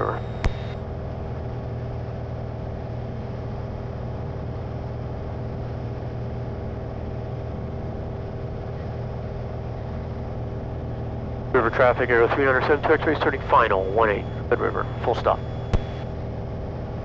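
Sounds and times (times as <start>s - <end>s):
propeller airplane engine droning: 11.6s - 16.1s.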